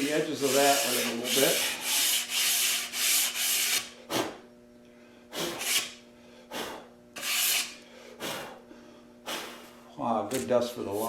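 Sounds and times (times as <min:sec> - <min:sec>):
sandpaper rubbing on wood: 0:00.0 - 0:03.9, 0:07.2 - 0:07.8.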